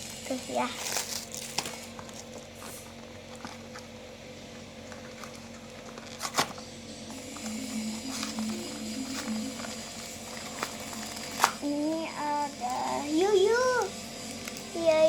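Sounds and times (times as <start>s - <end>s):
plastic packaging rustling: 0.0s - 4.0s, 4.8s - 12.1s.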